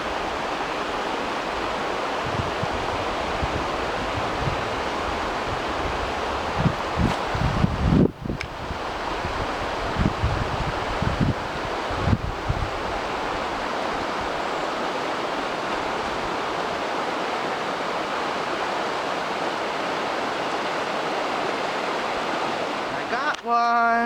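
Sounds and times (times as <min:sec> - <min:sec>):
waterfall roaring: 0:13.0 - 0:24.0.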